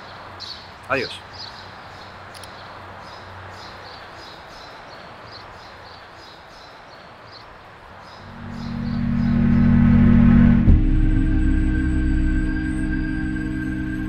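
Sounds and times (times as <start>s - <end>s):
outdoor background wash: 0.0s - 14.0s
low ambient music: 8.2s - 14.0s.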